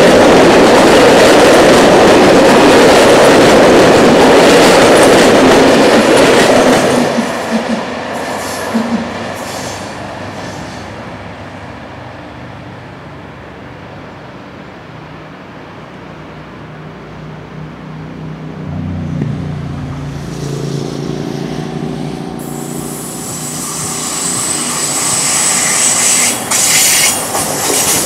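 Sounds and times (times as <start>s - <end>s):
train wheel-and-rail noise: 0.0s - 28.0s
high-pitched wheel squeals: 22.5s - 27.2s
wheels clicking over rail joints: 24.8s - 28.0s.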